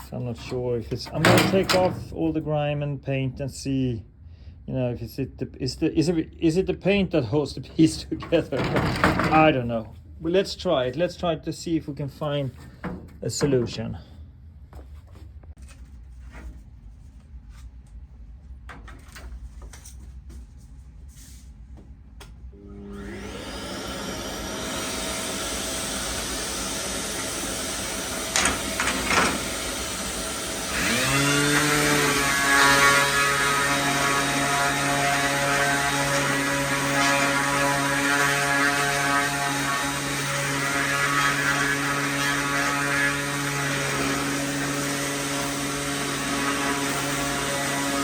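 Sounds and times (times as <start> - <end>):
electric sanders running: 22.6 - 48.0.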